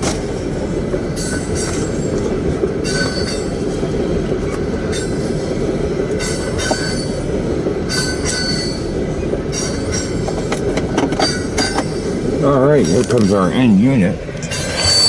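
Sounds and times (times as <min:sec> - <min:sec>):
train wheels rumbling on rail: 0:00.0 - 0:15.0
high-pitched wheel squeals: 0:02.8 - 0:03.5, 0:06.3 - 0:07.2, 0:07.9 - 0:08.9, 0:14.4 - 0:15.0.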